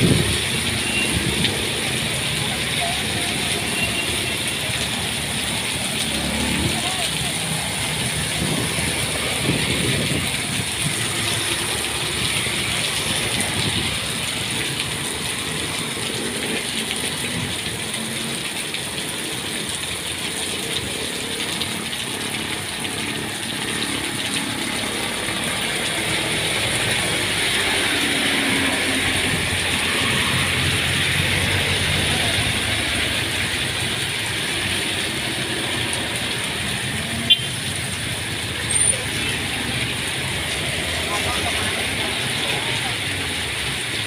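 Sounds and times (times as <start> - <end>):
heavy rain pattering: 0.0 - 44.0.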